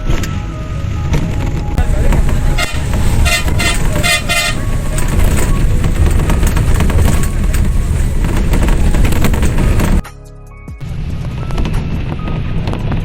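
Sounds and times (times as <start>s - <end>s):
loud low rumble: 0.0s - 10.0s, 10.8s - 13.0s
vehicle horn honking: 1.9s - 8.0s.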